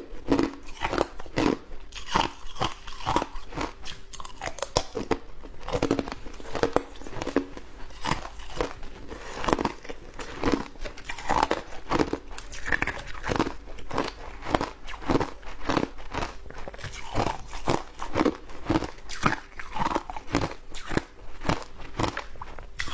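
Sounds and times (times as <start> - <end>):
shaved ice being chewed: 0.0 - 22.9.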